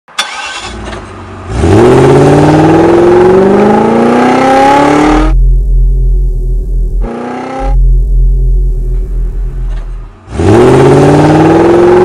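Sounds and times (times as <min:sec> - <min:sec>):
car engine accelerating: 0:00.2 - 0:12.0
low steady rumble: 0:04.8 - 0:11.0.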